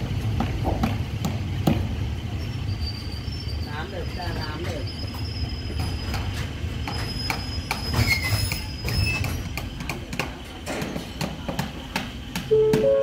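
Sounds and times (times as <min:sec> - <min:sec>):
train coach rumbling: 0:00.0 - 0:13.0
faint high squeal: 0:02.4 - 0:03.8.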